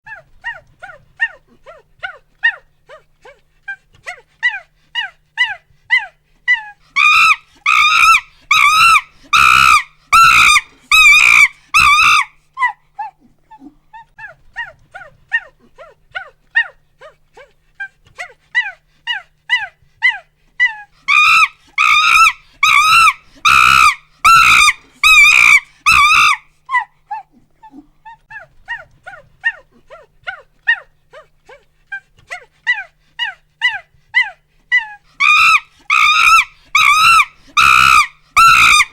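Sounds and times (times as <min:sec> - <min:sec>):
monkey hooting and screaming: 0:04.4 - 0:12.8, 0:18.6 - 0:26.9, 0:32.3 - 0:38.9.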